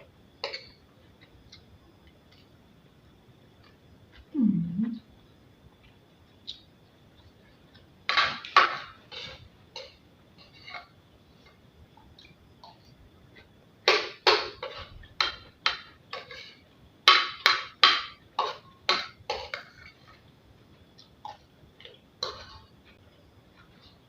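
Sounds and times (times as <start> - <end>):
spoon clacking against a plate: 13.8 - 20.2.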